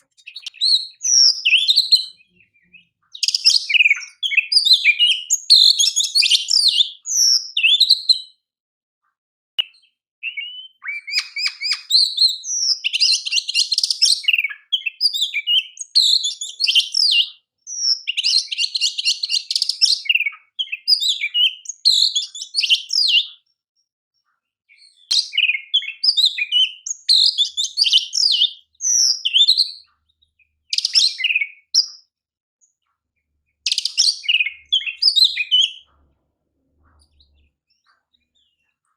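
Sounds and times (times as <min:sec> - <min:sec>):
bird singing whistles and trills: 0:00.0 - 0:08.4, 0:09.6 - 0:23.6, 0:24.2 - 0:36.0, 0:36.8 - 0:38.9.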